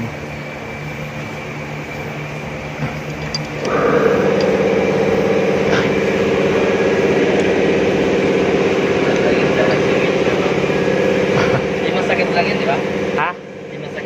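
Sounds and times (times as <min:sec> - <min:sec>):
steady low hum: 0:00.0 - 0:14.0
engine starting and idling: 0:03.2 - 0:13.2.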